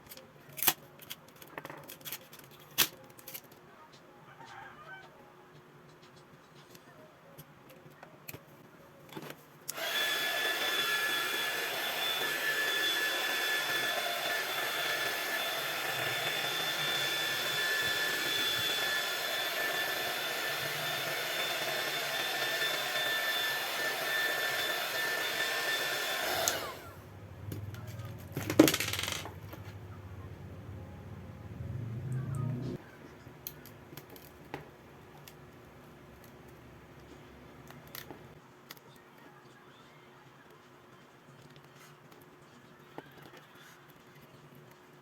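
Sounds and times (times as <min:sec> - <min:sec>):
hot-air blower whining: 0:09.7 - 0:27.7.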